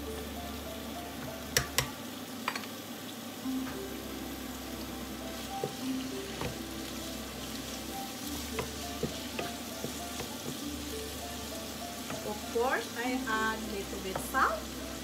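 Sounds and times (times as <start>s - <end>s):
vegetables sizzling in hot oil: 0.0s - 15.0s
wooden spatula scraping a pan: 5.3s - 14.6s.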